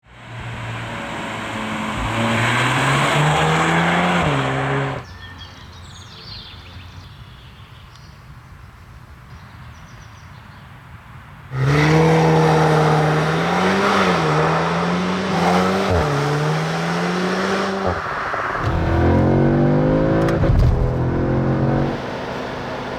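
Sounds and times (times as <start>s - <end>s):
car engine accelerating hard: 0.2s - 5.0s, 11.5s - 22.9s.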